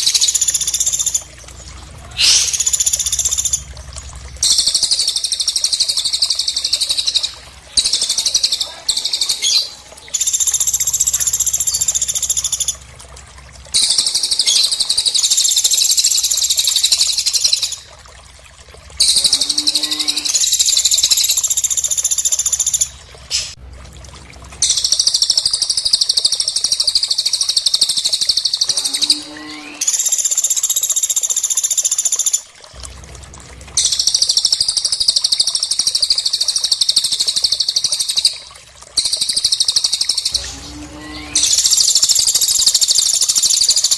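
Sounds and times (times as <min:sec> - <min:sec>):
lower sliding bird call: 0:02.2 - 0:02.8.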